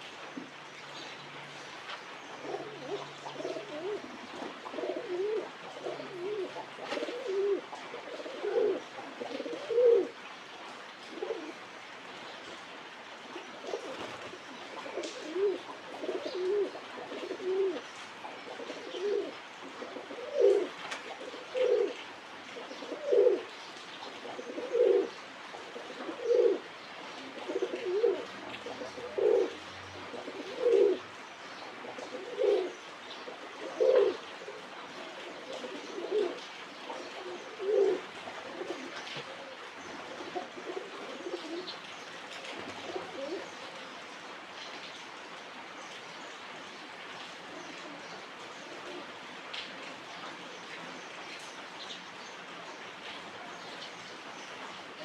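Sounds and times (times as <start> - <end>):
pigeons cooing: 2.1 - 10.2, 11.0 - 11.7, 13.2 - 44.0, 47.4 - 49.6.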